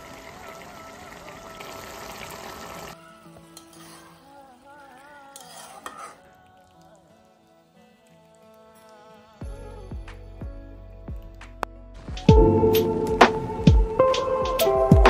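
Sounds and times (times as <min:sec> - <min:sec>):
curry sizzling in a pan: 0:00.0 - 0:09.7
background music: 0:02.9 - 0:15.0
ladle scraping and clinking a pan: 0:03.5 - 0:06.4.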